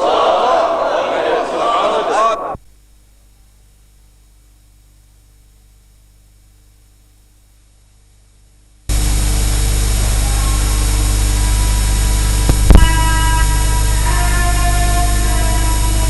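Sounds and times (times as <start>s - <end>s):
faint mains hum: 0.0s - 16.0s
loud steady hiss: 8.8s - 16.0s.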